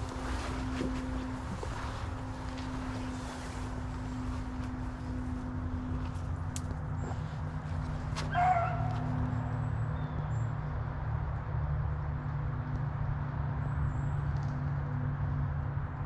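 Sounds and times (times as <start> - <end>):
steady low hum: 0.0 - 14.2
dog baying: 8.3 - 9.1.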